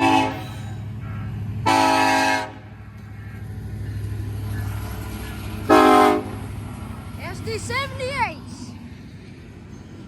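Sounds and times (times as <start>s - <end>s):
locomotive air horn blasts: 0.0s - 2.7s, 5.7s - 6.4s
train rumbling past: 0.0s - 10.0s.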